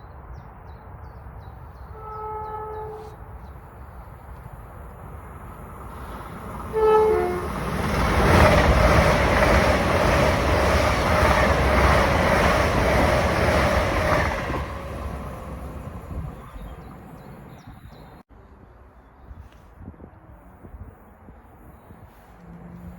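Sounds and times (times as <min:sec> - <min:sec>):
train horn: 0:01.9 - 0:03.2, 0:06.7 - 0:07.6
train wheels rushing on rail: 0:04.3 - 0:17.8.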